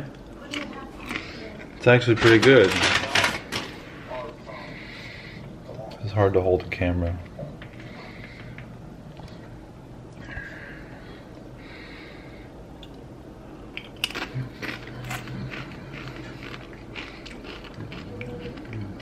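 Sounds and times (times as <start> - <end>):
chips being crunched: 13.8 - 18.7.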